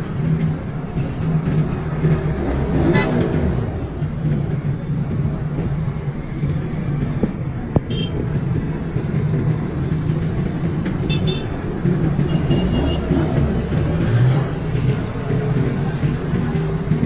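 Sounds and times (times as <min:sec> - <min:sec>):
motor vehicle engine rumble: 0:00.0 - 0:17.0.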